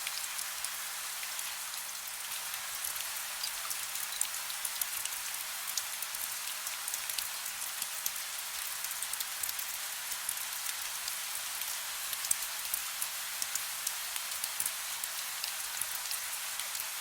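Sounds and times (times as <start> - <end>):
soft rain hissing: 0.0 - 17.0
raindrop ticks: 2.8 - 16.9.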